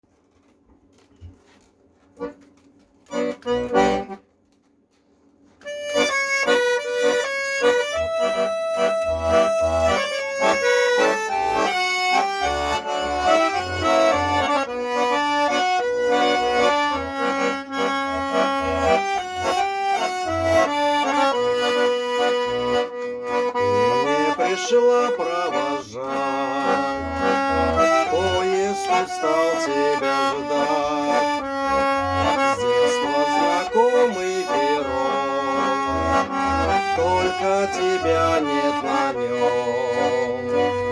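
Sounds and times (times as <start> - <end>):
accordion playing: 1.3 - 4.5, 5.4 - 40.9.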